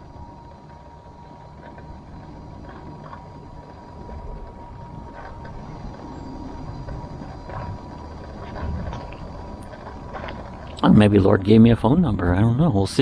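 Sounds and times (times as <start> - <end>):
scooter motor and tyres rumbling: 0.0 - 13.0
thin steady whine: 0.0 - 13.0.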